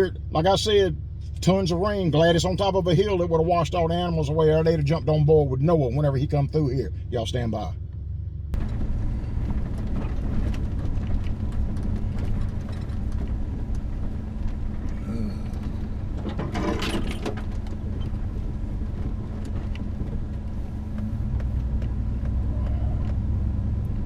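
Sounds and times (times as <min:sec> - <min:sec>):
vehicle engine running: 0:00.0 - 0:24.0
knocks and rattles: 0:15.6 - 0:22.4.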